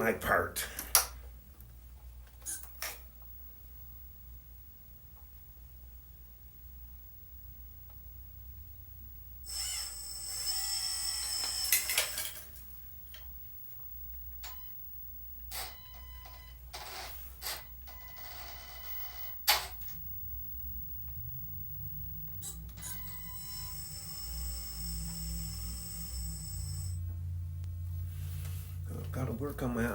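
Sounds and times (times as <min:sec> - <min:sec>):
small electric motors whining: 0:09.4 - 0:13.3, 0:15.5 - 0:27.1.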